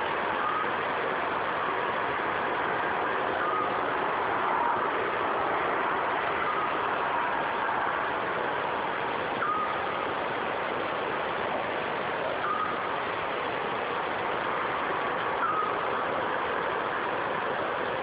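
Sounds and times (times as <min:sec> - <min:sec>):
bird whistled note: 0:15.4 - 0:15.8.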